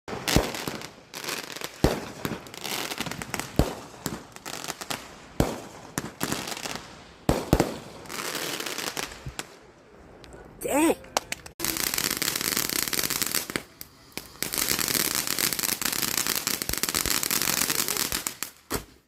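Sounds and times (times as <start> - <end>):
fireworks bangs: 0.1 - 9.5
fireworks crackling: 0.1 - 9.6, 11.2 - 19.0.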